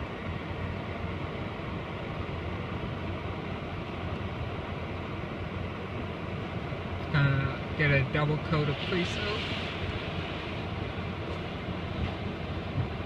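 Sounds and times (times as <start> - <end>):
hiss of car wash spray: 8.7 - 10.6.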